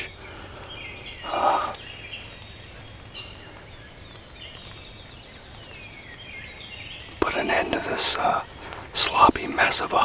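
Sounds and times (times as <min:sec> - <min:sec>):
high bird chirps: 0:00.0 - 0:03.5
lower bird call: 0:00.0 - 0:03.7
steady outdoor hiss: 0:00.0 - 0:10.0.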